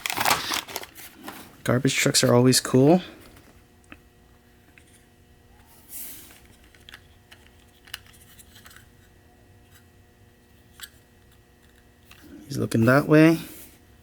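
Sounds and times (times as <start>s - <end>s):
packaging rustle: 0.0s - 1.5s
low steady hum: 0.0s - 14.0s.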